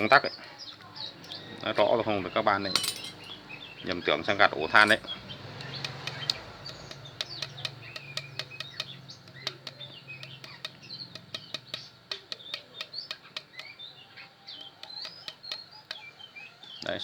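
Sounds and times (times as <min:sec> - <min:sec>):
small birds chirping: 0:00.0 - 0:17.0
light clicks and taps of handwork: 0:04.8 - 0:16.1.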